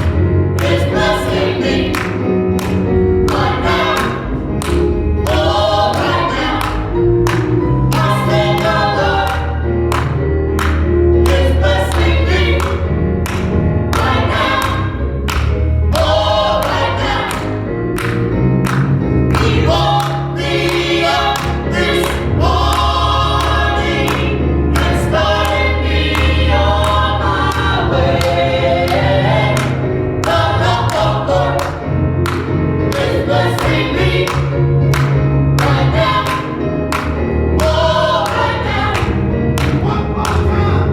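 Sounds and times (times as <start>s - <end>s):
bass line: 0.0s - 40.9s
gospel choir singing: 0.0s - 40.9s.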